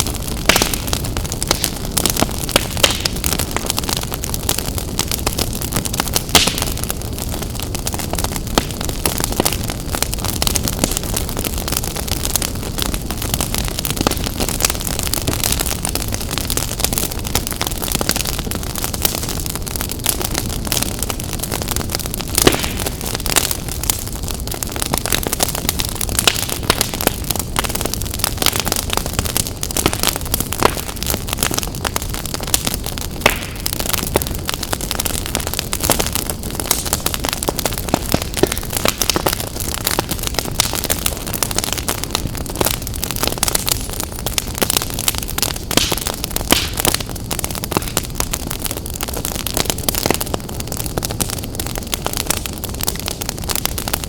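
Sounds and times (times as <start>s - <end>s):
wood fire crackling: 0.0s - 54.0s
sharp pops and snaps: 0.5s - 1.8s, 2.5s - 3.2s, 6.4s - 6.7s, 22.4s - 23.0s, 29.8s - 31.0s, 33.2s - 33.6s, 45.7s - 47.0s, 47.7s - 48.1s.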